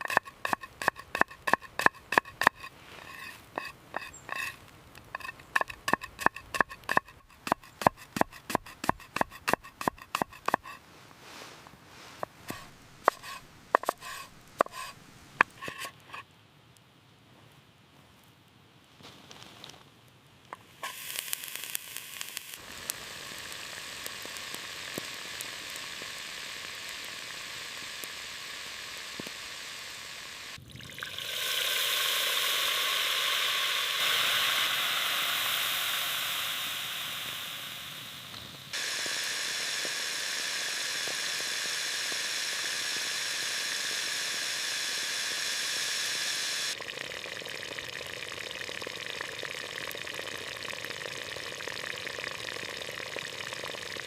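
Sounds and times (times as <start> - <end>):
food sizzling in a hot pan: 12.0 - 14.9, 20.7 - 46.8.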